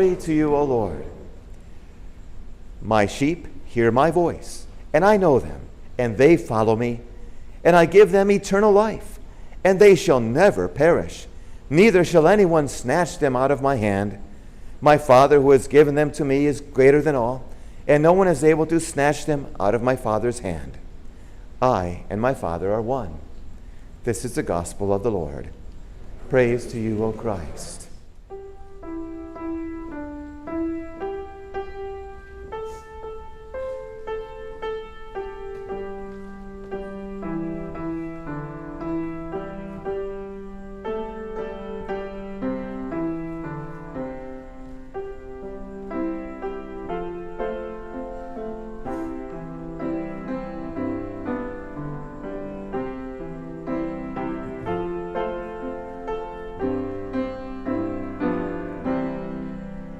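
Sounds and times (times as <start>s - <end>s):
piano bass line: 0.0s - 1.6s, 26.2s - 59.9s
piano chords and melody: 28.3s - 59.9s.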